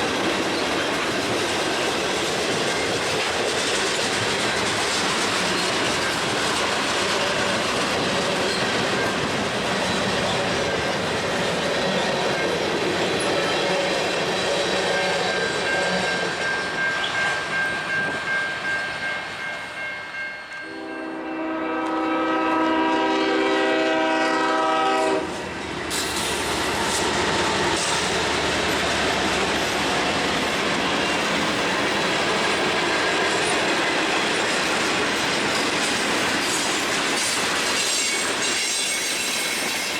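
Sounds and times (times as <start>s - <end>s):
freight train wheels clacking: 0.0s - 20.8s, 21.7s - 39.9s
locomotive air horn blast: 20.7s - 25.4s.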